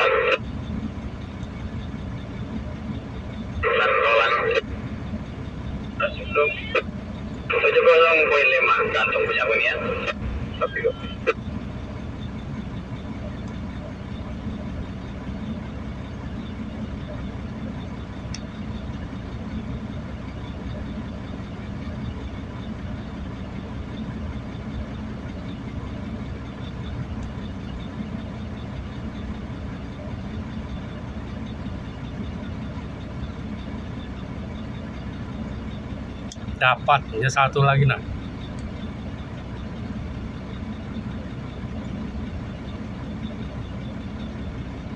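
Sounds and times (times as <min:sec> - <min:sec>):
low engine hum: 0:00.0 - 0:44.9
faint clicks: 0:13.4 - 0:13.6.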